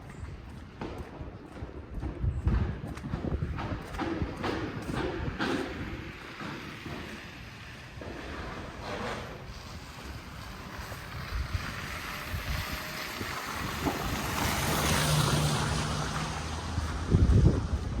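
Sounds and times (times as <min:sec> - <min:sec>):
vehicle engine hum: 0:00.0 - 0:18.0
wind buffeting microphone: 0:00.0 - 0:18.0
tyres hissing through wet snow: 0:08.6 - 0:17.0.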